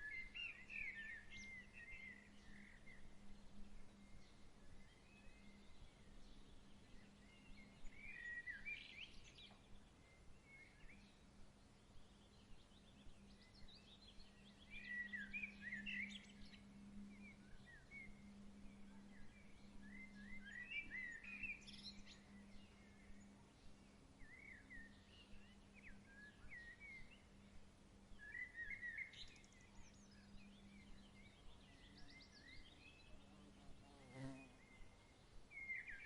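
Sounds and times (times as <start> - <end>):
songbird chirping: 0.0 - 36.0
steady low hum: 13.0 - 28.2.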